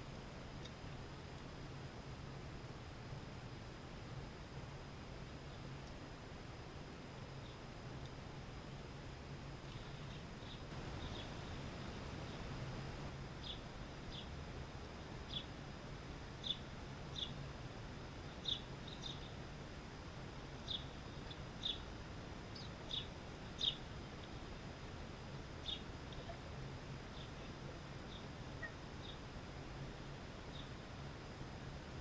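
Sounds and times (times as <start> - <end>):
small birds chirping: 7.0 - 8.1, 9.6 - 12.5, 13.4 - 15.6, 16.4 - 17.5, 18.2 - 19.4, 20.2 - 24.6, 25.5 - 31.0.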